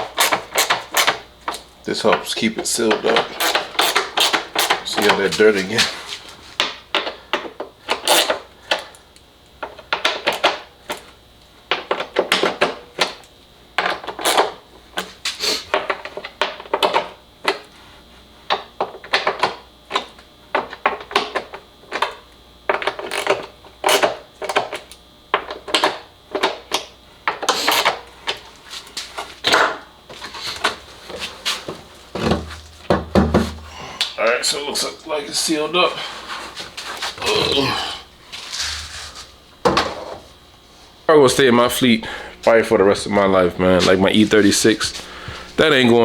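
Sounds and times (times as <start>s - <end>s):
hand tools and parts clattering: 36.0s - 40.2s.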